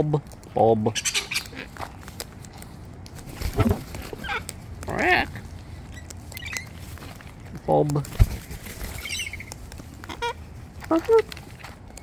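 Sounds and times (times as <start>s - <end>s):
bird call rising and falling: 5.9s - 6.8s, 8.9s - 10.4s.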